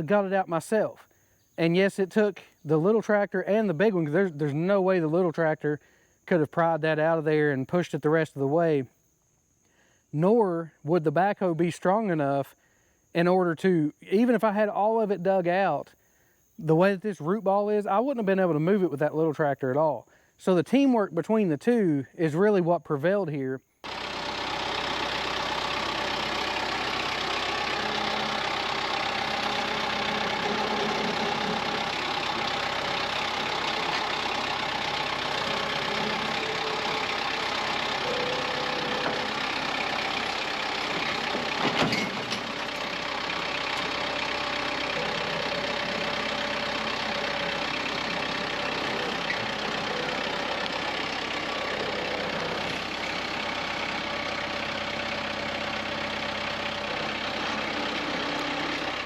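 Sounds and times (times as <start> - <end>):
diesel tractor engine running: 0.0 - 1.0, 1.6 - 5.6, 23.8 - 59.0.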